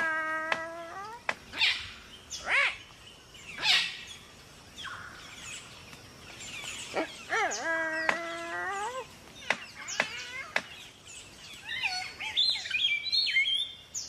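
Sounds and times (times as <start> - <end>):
cockatoo calls: 0.0 - 2.9, 3.6 - 4.1, 6.7 - 10.9, 11.5 - 13.6.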